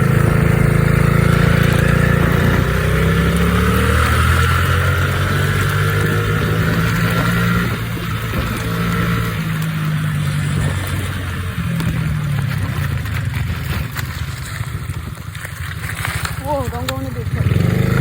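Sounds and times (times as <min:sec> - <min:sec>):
wind noise: 0:00.0 - 0:15.3
small motorcycle engine revving: 0:00.0 - 0:18.0.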